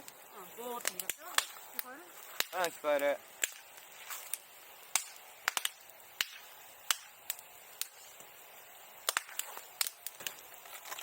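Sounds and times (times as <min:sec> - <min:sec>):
bonfire crackling and popping: 0:00.0 - 0:11.0
faint fire hiss: 0:00.0 - 0:11.0.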